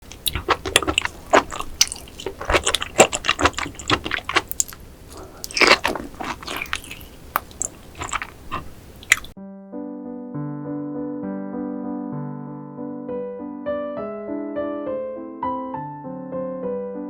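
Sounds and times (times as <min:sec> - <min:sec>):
person chewing: 0:00.0 - 0:09.4
wet squelching smear: 0:00.0 - 0:09.4.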